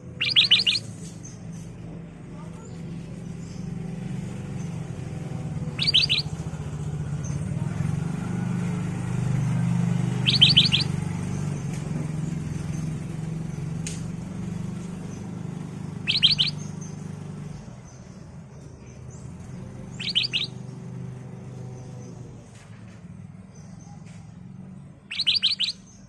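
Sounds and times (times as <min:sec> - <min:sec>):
bird calling high notes: 0:00.0 - 0:01.0, 0:05.6 - 0:06.4, 0:10.1 - 0:11.0, 0:16.0 - 0:16.7, 0:19.9 - 0:20.6, 0:25.0 - 0:26.0.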